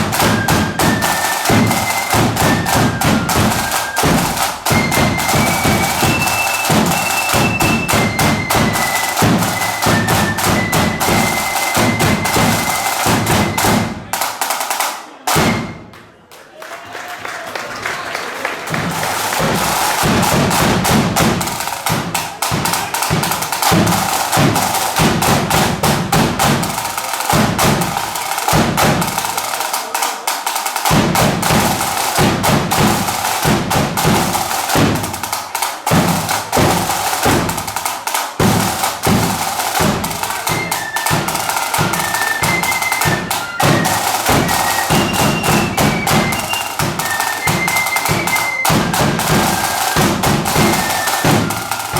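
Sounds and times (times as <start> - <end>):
flutes playing a tune: 0.0 - 14.1, 39.0 - 51.9
snare drums rattling: 0.0 - 15.9, 18.5 - 51.9
bass drum beating: 18.8 - 26.8.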